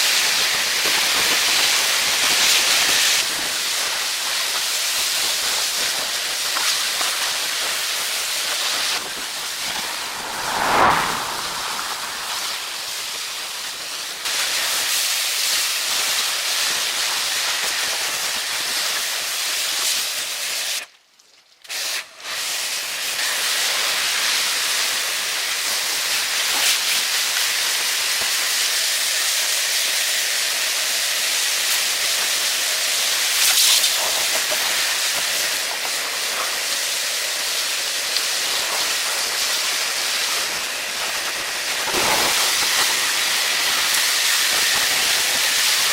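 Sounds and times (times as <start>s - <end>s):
loud steady hiss: 21.7s - 45.9s.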